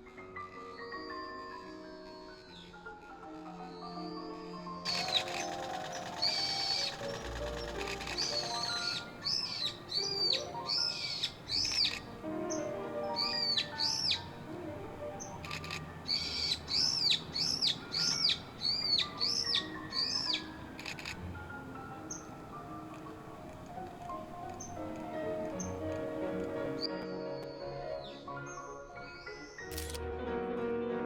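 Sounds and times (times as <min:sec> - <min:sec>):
kingfisher piping calls: 0:04.9 - 0:26.9
piano music: 0:04.9 - 0:28.9.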